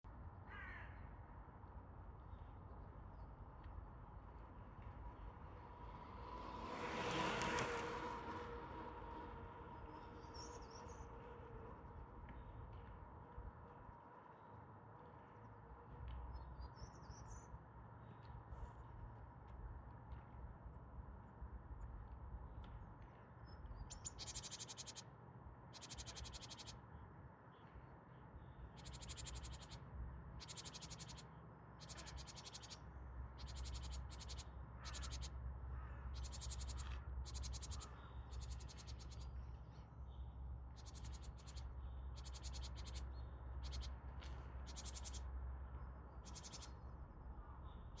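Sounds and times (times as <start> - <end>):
raspy high-pitched chirps: 23.9 - 25.0, 25.8 - 26.8, 28.8 - 29.8, 30.4 - 31.2, 31.8 - 32.8, 33.4 - 35.3, 36.2 - 39.2, 40.8 - 43.9, 44.7 - 45.2, 46.2 - 46.8.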